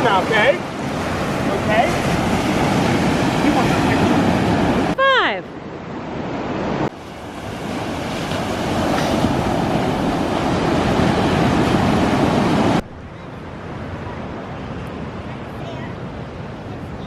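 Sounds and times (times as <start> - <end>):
ocean surf on beach: 0.0 - 17.0
wind on microphone: 0.0 - 17.0.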